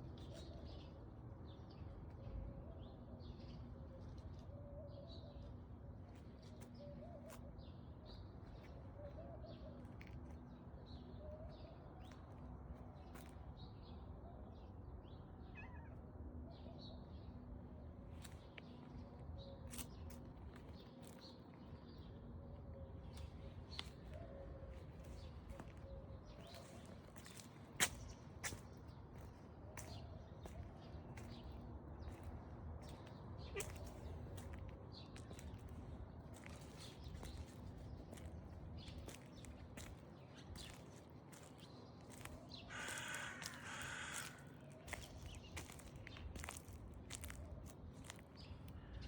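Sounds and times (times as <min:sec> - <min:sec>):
cat meowing faintly: 0:15.5 - 0:16.1.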